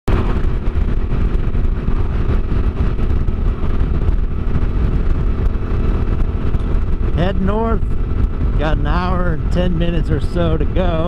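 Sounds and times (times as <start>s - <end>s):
motorcycle engine running: 0.1s - 11.0s.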